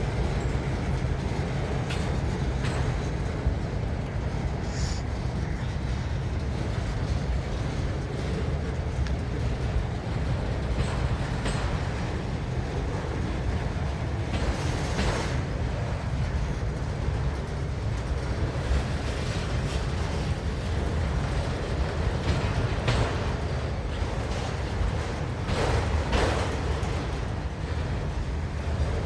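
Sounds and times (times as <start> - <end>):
freight train rumbling: 0.0 - 29.0
train wheels clicking over rail joints: 0.0 - 29.0.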